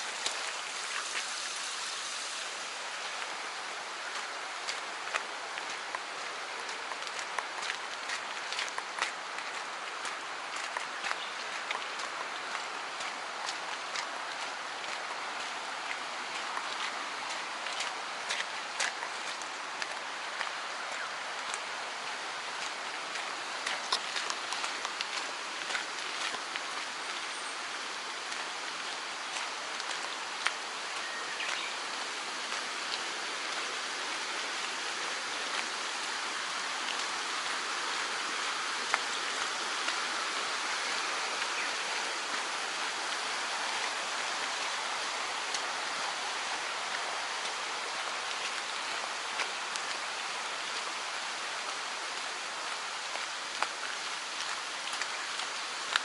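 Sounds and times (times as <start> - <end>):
mountain stream rushing over rocks: 0.0 - 56.0.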